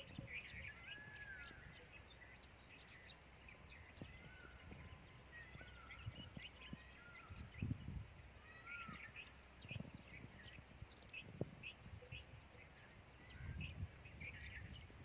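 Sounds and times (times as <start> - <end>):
whistled bird calls: 0.0 - 7.7, 8.5 - 10.3
faint bird chirps: 0.0 - 15.0.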